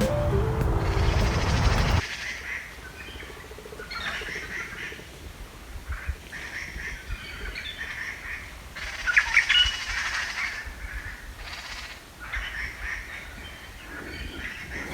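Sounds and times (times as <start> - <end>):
rushing noise: 0.0 - 2.0.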